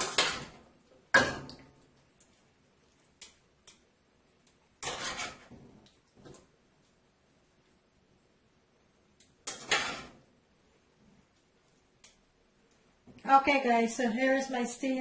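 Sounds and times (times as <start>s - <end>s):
utensils scraping and rattling: 4.8s - 5.6s
cookware clanking: 9.5s - 10.2s.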